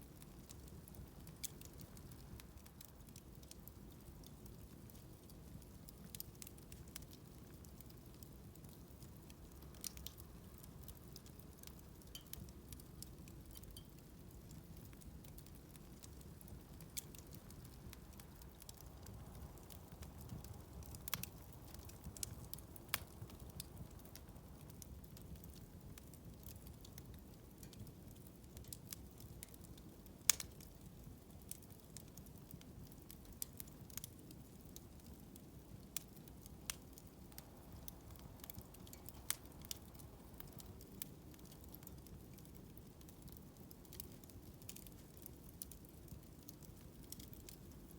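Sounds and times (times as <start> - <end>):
bonfire low rumble: 0.1 - 47.9
fire pops and crackles: 0.1 - 47.9.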